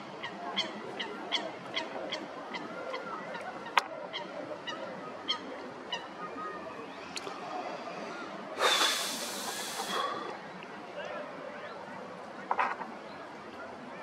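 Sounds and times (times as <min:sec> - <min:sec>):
bird honking calls: 0:00.2 - 0:06.6.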